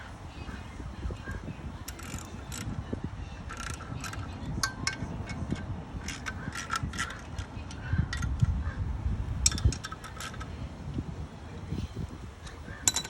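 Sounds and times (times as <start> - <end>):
metal tools clinking: 1.8 - 2.7, 3.5 - 8.5, 9.4 - 10.5, 12.5 - 13.0.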